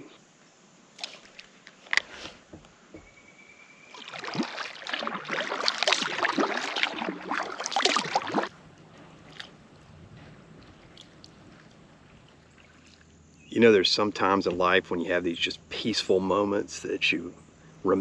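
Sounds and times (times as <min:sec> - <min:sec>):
water splashing against kayak: 0:03.9 - 0:13.2.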